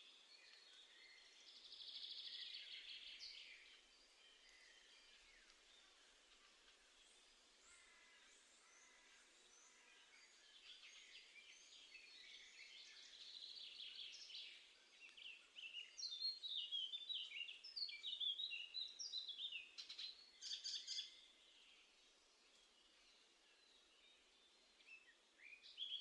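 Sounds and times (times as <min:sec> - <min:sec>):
songbird twittering: 0:09.6 - 0:21.8, 0:24.8 - 0:26.0.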